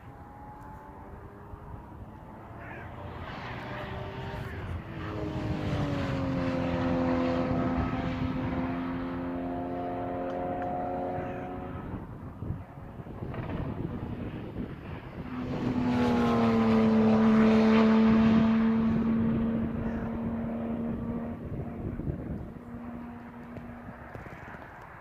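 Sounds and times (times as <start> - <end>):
sports car engine passing: 0.0 - 25.0.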